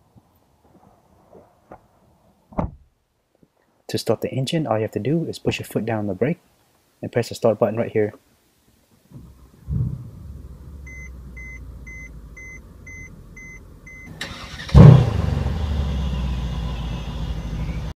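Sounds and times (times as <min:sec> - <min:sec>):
car engine starting and idling: 0:09.1 - 0:18.0
car warning chime beeping: 0:10.8 - 0:14.7.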